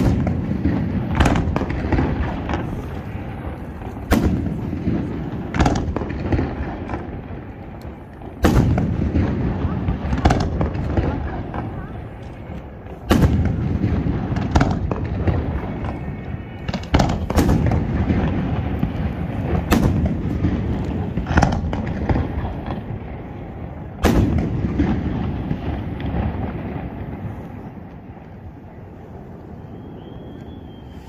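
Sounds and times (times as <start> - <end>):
firework shells bursting: 0.0 - 22.9
rolling rumble of echo: 0.0 - 31.0.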